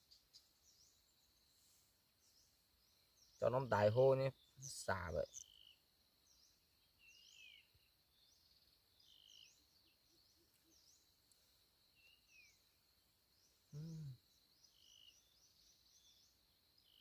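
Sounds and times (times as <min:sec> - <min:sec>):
high insect drone: 0:00.0 - 0:17.0
small birds chirping: 0:00.0 - 0:17.0
human voice: 0:13.7 - 0:14.2.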